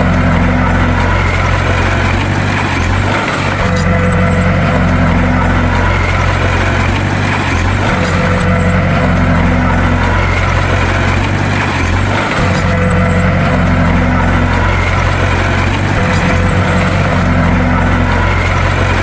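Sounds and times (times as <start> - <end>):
bulldozer diesel engine droning: 0.0 - 19.0.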